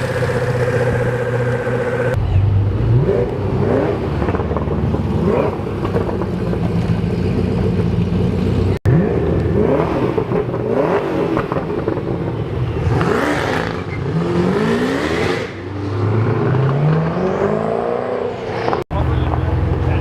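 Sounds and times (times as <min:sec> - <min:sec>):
car engine accelerating hard: 0:00.0 - 0:12.1.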